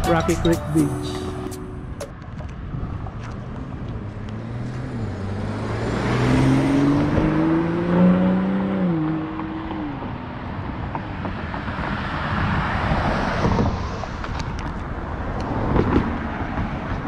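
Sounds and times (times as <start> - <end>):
road noise: 0.0 - 17.0
car engine accelerating: 2.9 - 10.4.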